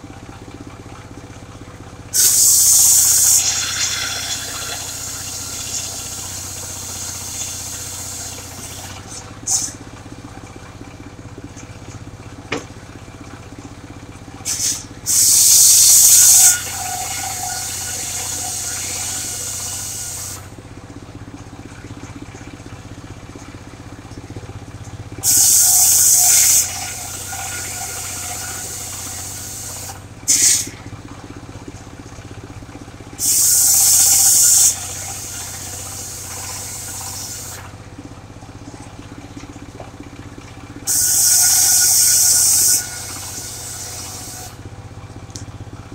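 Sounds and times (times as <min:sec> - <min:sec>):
sawmill engine running: 0:00.0 - 0:45.9
saw blade screaming into log: 0:02.2 - 0:09.8, 0:14.5 - 0:20.5, 0:25.2 - 0:30.7, 0:40.9 - 0:44.6
saw cutting steadily: 0:02.2 - 0:09.8, 0:14.5 - 0:20.5, 0:25.2 - 0:30.8, 0:33.2 - 0:37.7, 0:40.9 - 0:44.6.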